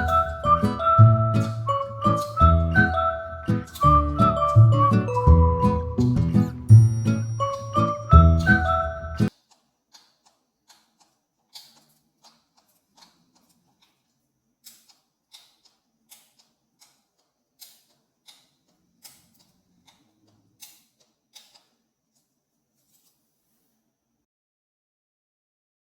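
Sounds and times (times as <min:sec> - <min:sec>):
faint irregular clicks: 0:09.3 - 0:23.2.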